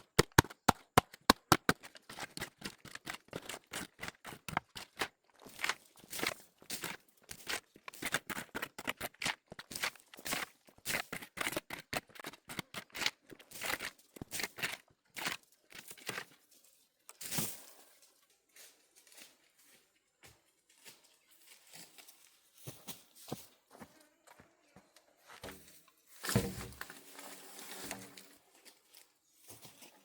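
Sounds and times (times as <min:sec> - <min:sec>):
crackling and scraping: 0:00.0 - 0:16.7, 0:25.4 - 0:30.0.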